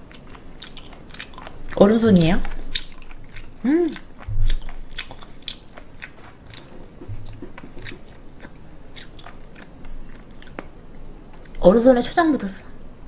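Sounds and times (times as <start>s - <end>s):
wet mouth clicks and crunches: 0.0s - 1.8s, 2.4s - 10.7s
chewing raw seafood: 0.0s - 11.6s.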